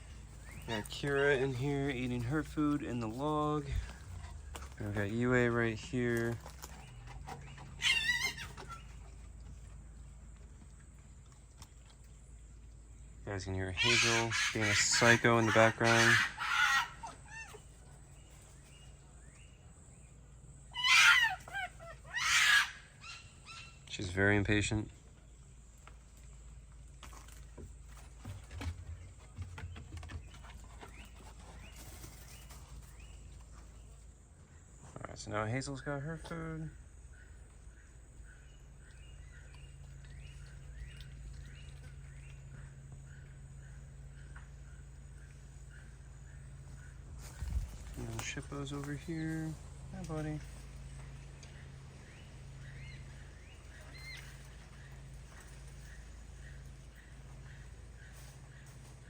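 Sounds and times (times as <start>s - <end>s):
steady low hum: 0.0s - 20.8s, 21.7s - 59.0s
fox yipping: 7.6s - 9.0s, 13.8s - 17.8s, 20.7s - 23.8s
fox shrill high calls: 7.8s - 8.8s, 13.8s - 17.7s, 20.7s - 23.8s
high chirping calls: 35.7s - 59.0s.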